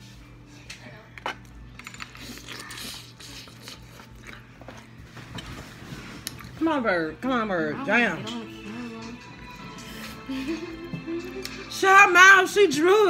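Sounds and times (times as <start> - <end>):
person chewing: 2.2 - 6.6.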